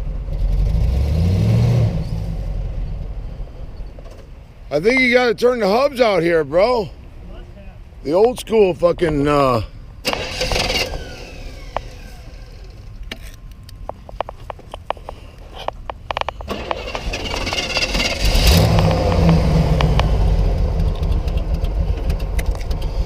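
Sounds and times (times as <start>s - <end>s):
pickup engine idling: 9.4s - 23.0s
sharp clicks and knocks: 13.0s - 23.0s
loud low rumble: 17.6s - 23.0s.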